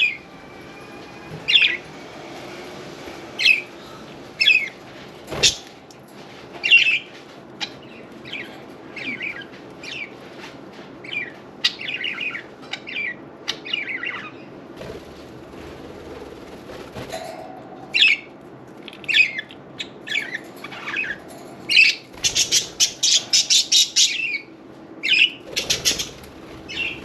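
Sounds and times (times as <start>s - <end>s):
budgerigars chirping: 11.1s - 14.4s, 21.8s - 27.0s.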